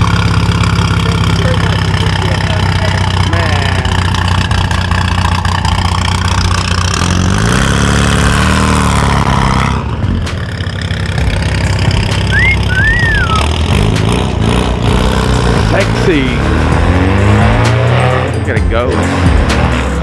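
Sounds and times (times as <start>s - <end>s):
car engine revving: 0.0s - 20.0s
high whistle-like tone: 12.2s - 13.4s.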